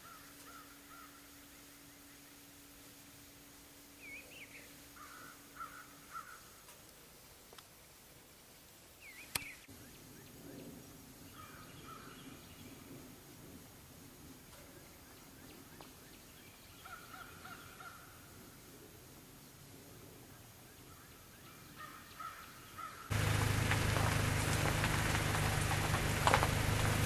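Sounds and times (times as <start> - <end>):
distant crow cawing: 0.0 - 1.4, 4.9 - 6.8, 11.4 - 12.1, 16.8 - 18.3, 21.7 - 26.2
sharp click: 9.2 - 9.7.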